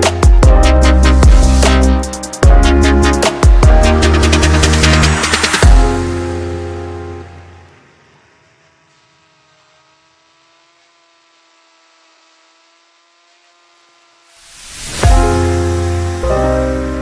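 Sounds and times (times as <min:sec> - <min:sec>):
electronic music: 0:00.0 - 0:07.8, 0:15.0 - 0:17.0
faint steady hum of held tones: 0:06.3 - 0:14.4.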